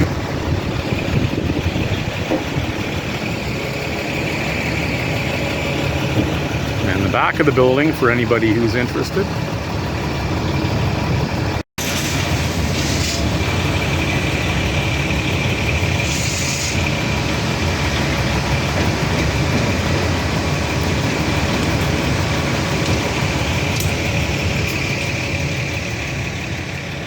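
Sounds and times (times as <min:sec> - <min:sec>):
diesel engine running: 0:00.0 - 0:27.0
air hisses: 0:16.0 - 0:16.8.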